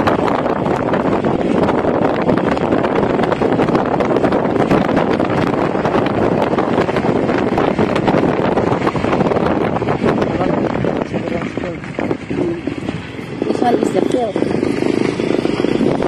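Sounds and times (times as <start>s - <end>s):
motorcycle riding noise: 0.0s - 16.0s
wind buffeting microphone: 0.0s - 16.0s.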